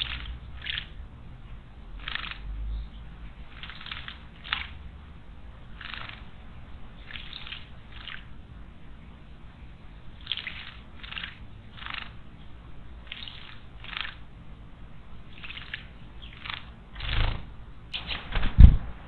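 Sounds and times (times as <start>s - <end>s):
bird splashing in water: 2.0s - 2.6s, 3.5s - 5.0s, 5.7s - 6.4s, 7.0s - 8.3s, 10.2s - 12.2s, 15.3s - 18.6s.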